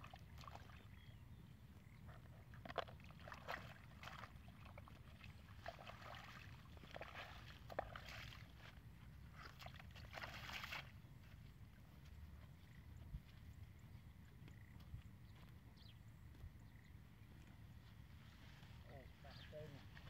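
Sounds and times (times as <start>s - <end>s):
water sloshing splashes: 2.6s - 8.8s, 9.4s - 11.0s
foot stepping into puddle: 2.7s - 11.0s.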